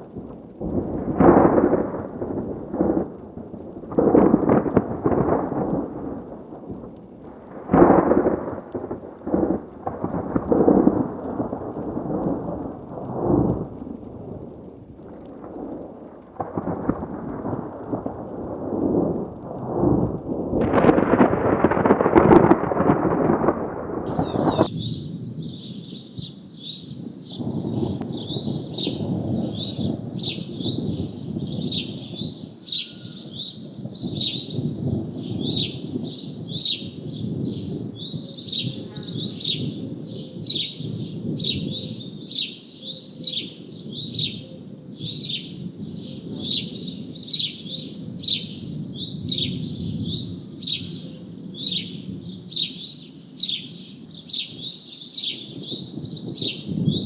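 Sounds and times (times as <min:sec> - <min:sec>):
bird chirping: 0:24.1 - 0:57.0.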